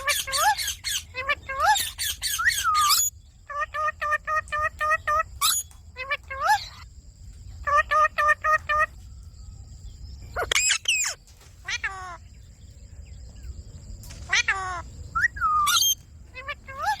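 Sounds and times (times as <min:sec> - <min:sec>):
parrot squawking and screeching: 0:00.0 - 0:06.8, 0:07.6 - 0:09.0, 0:10.4 - 0:12.2, 0:14.3 - 0:17.0.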